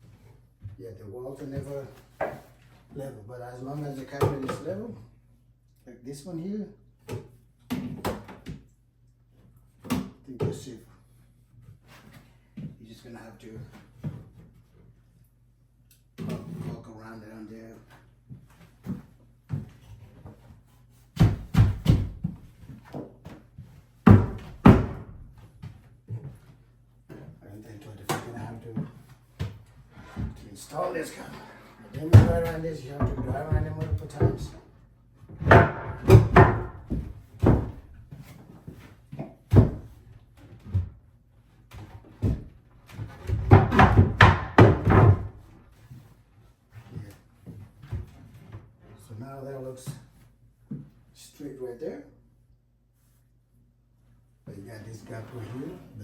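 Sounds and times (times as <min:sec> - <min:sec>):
knocks on cabinet: 0:24.1 - 0:25.2, 0:32.0 - 0:34.5, 0:35.4 - 0:38.0, 0:43.2 - 0:45.4.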